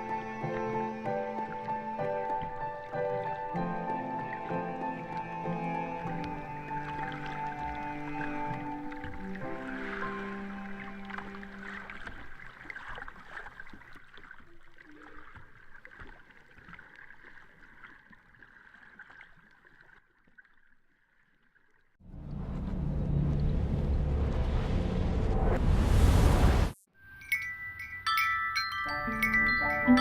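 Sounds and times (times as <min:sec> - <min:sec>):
small splashes: 0:00.0 - 0:22.0
water sloshing and trickling: 0:00.0 - 0:24.6
loud rushing noise with hum: 0:22.1 - 0:26.8.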